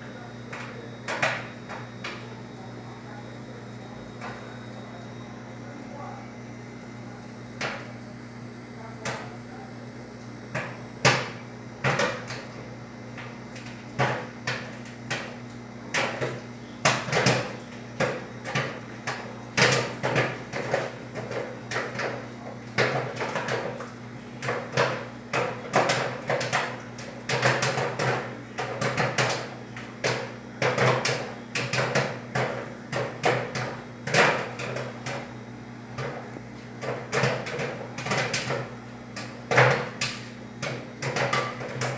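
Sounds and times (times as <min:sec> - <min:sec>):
microwave oven humming: 0:00.0 - 0:41.9
sharp pops in microwave: 0:10.5 - 0:12.4.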